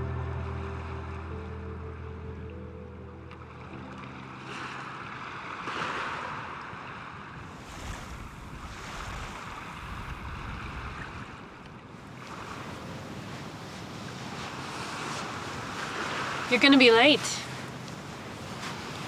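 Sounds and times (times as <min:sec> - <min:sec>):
wind: 0:00.0 - 0:19.0
surf washing onto beach: 0:03.8 - 0:19.0.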